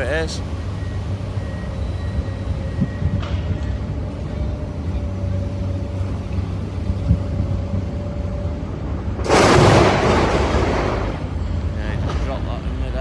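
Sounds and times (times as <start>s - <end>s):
excavator diesel engine running: 0.0s - 13.0s
metal girder crashing into skip: 9.2s - 11.2s.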